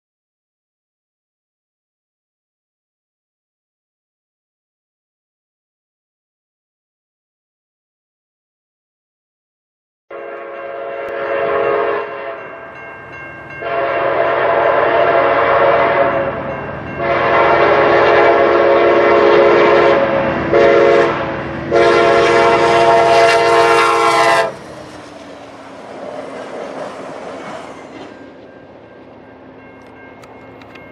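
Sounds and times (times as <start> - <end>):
locomotive air horn blasts: 10.1 - 12.6, 13.6 - 16.4, 17.0 - 24.6
train rumble: 10.2 - 30.9
wheels clacking on rail: 10.2 - 30.9.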